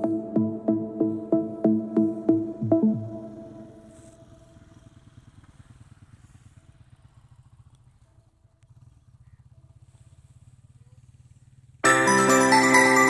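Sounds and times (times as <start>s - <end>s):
music: 0.0s - 4.2s, 11.8s - 13.0s
faint engine running: 2.0s - 12.8s.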